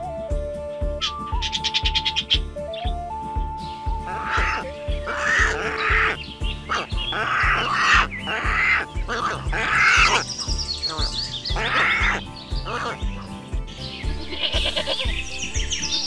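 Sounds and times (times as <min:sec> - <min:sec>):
background music with beat: 0:00.0 - 0:16.0
high chirping notes: 0:00.5 - 0:16.0
pelican raspy calls: 0:04.0 - 0:13.4, 0:14.2 - 0:15.2.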